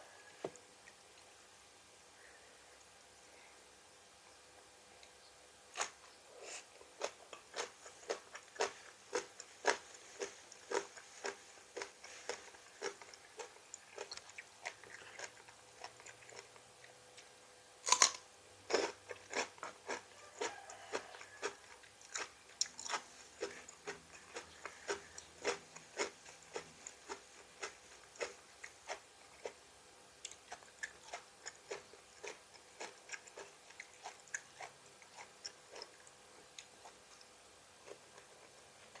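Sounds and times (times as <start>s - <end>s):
crunchy chewing: 5.0s - 17.3s, 17.9s - 39.0s.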